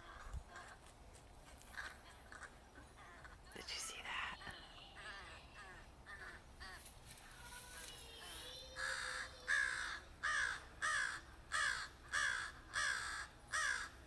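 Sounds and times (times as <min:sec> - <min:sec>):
crows cawing: 0:08.5 - 0:14.0.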